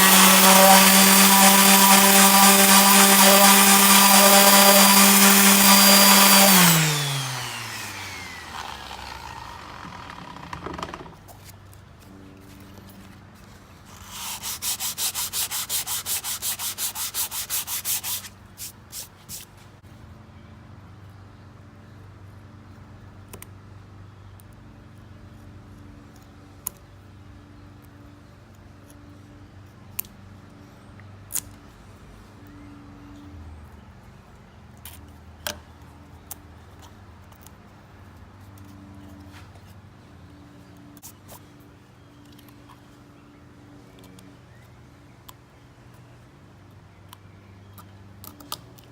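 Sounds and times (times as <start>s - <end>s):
sandpaper rubbing on wood: 0.0s - 7.9s, 13.9s - 19.5s.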